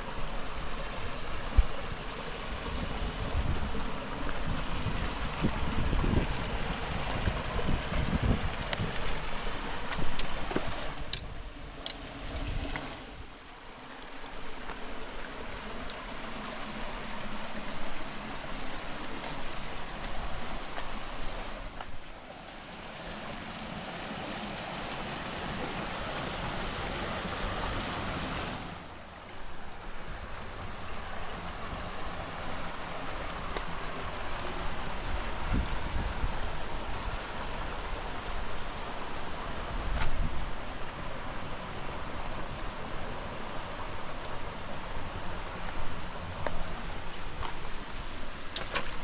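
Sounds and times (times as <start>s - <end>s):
river rushing over stones: 0.0s - 49.0s
wind buffeting microphone: 1.2s - 11.6s, 33.4s - 38.8s.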